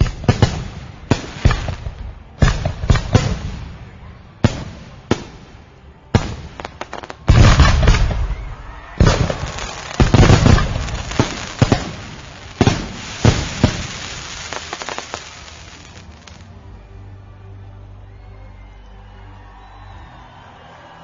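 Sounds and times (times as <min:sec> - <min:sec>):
fireworks crackling: 0:00.0 - 0:05.5, 0:06.2 - 0:16.6
fireworks exploding: 0:00.0 - 0:16.6.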